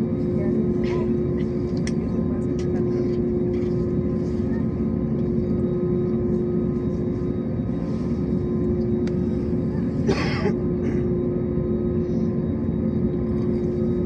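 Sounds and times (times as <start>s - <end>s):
aircraft cabin engine drone: 0.0s - 14.0s
person coughing: 10.0s - 11.1s.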